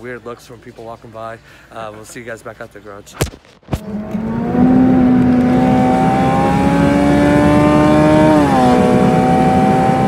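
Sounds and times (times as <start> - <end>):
car engine accelerating and shifting: 3.7 - 10.0.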